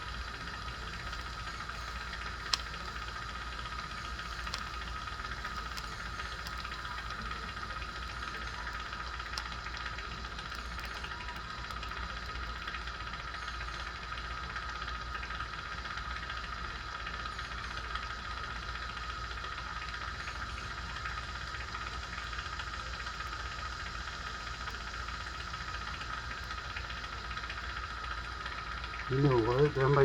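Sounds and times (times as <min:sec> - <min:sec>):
soldering torch hissing: 0:00.0 - 0:13.7.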